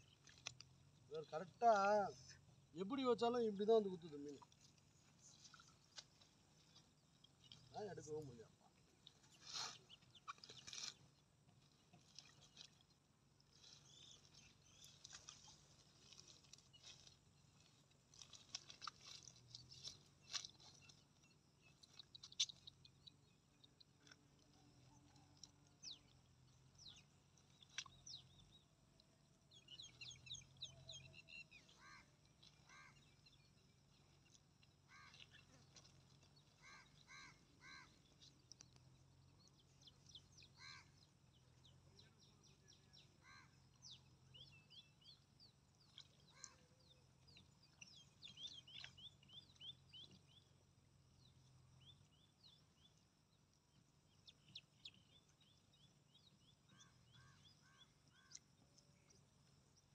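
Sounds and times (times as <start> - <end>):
high thin bird chirps: 9.1 - 11.1, 26.8 - 28.6, 45.8 - 50.3
lower bird calls: 29.5 - 33.6, 34.7 - 38.9, 39.5 - 50.5, 56.1 - 58.4.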